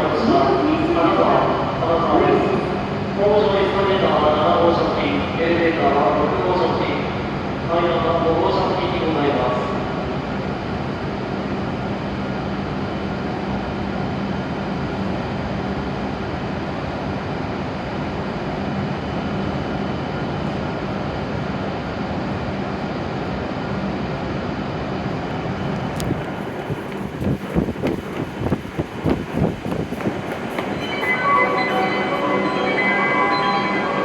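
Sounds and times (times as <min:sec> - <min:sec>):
train equipment hum: 0:10.0 - 0:34.0.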